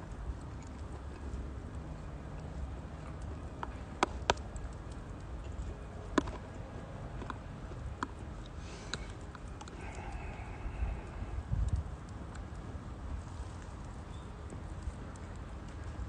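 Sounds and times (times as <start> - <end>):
fire low rumble: 0.0 - 16.0
firewood crackling and popping: 0.0 - 16.0.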